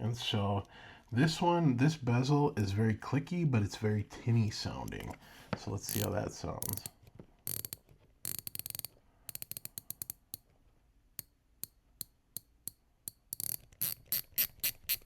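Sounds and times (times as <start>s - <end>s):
watch bezel clicking: 5.9s - 10.5s, 11.2s - 15.0s.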